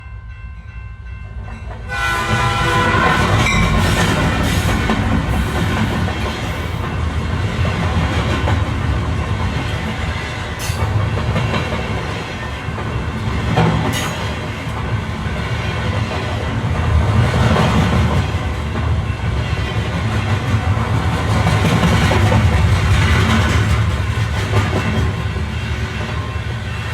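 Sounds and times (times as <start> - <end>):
train rumbling on track: 0.0 - 26.9
train horn: 1.9 - 4.7.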